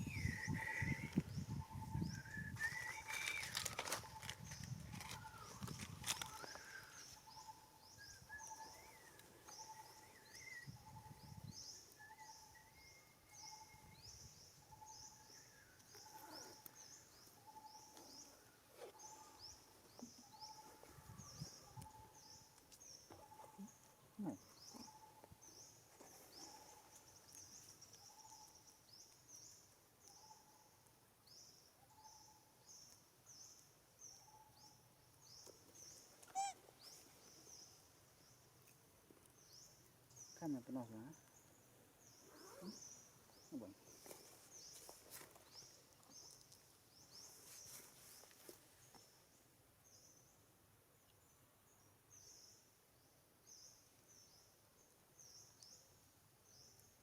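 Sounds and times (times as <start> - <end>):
lower repeated animal call: 36.2 - 36.6.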